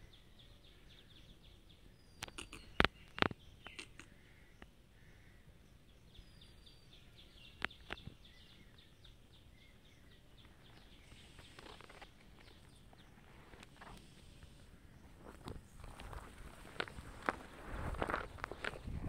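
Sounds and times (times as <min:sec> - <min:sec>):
small bird chirping rapidly: 0:00.0 - 0:13.9
sharp clicks: 0:02.2 - 0:04.7, 0:07.6 - 0:08.1.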